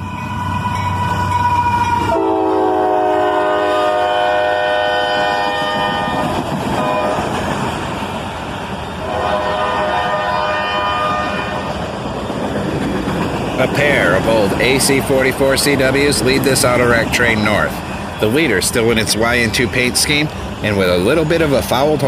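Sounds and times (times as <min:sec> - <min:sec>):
passing train rumble: 0:00.0 - 0:22.0
locomotive horn chord: 0:02.1 - 0:06.2, 0:09.0 - 0:11.7.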